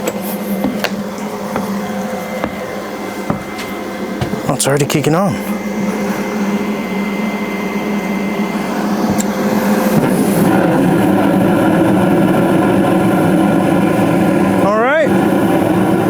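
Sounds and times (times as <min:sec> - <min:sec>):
furnace click: 0:00.0 - 0:05.1, 0:08.6 - 0:10.4
gas burners lighting: 0:00.0 - 0:12.0
furnace motor humming: 0:00.0 - 0:16.0.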